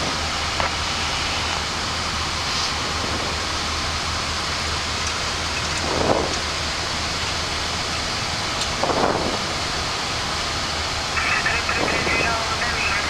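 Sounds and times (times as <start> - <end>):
aircraft engine noise: 0.0 - 13.0
airflow rush: 0.8 - 4.6.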